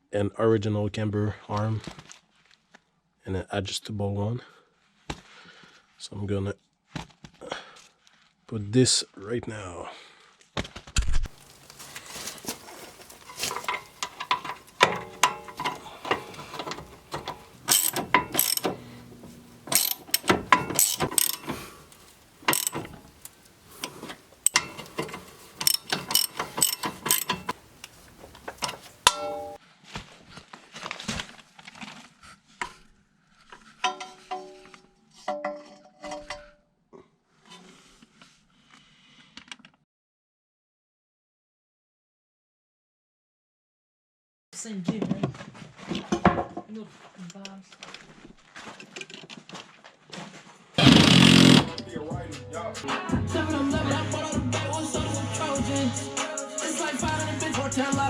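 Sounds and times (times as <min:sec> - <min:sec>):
metal tools clinking: 0:11.4 - 0:29.6, 0:33.8 - 0:36.5
socket ratchet clicking: 0:13.0 - 0:29.6, 0:50.8 - 0:51.8.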